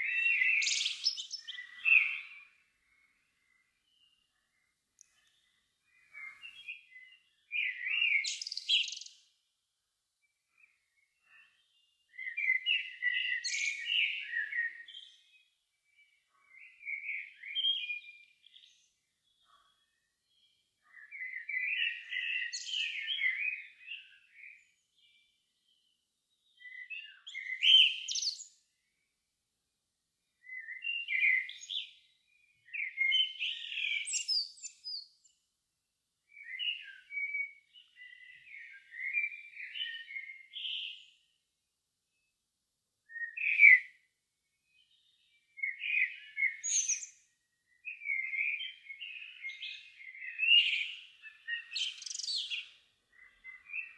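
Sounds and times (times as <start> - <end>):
songbird warbling: 49.1 - 53.9.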